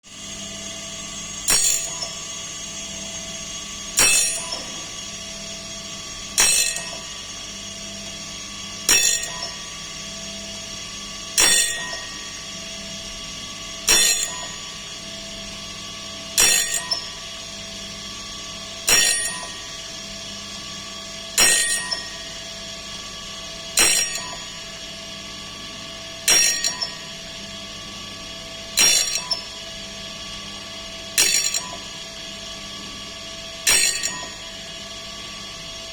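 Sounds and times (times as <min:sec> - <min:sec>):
sharpening machine motor hum: 0:00.1 - 0:24.9, 0:25.8 - 0:32.4, 0:33.6 - 0:34.9
metallic clack with ring: 0:01.5 - 0:02.2, 0:04.0 - 0:04.9, 0:06.4 - 0:07.1, 0:08.9 - 0:09.7, 0:11.4 - 0:12.2, 0:13.9 - 0:14.7, 0:16.4 - 0:17.2, 0:18.9 - 0:19.7, 0:21.4 - 0:22.3, 0:23.8 - 0:24.7, 0:26.3 - 0:27.2, 0:28.8 - 0:29.6, 0:31.2 - 0:31.9, 0:33.7 - 0:34.5.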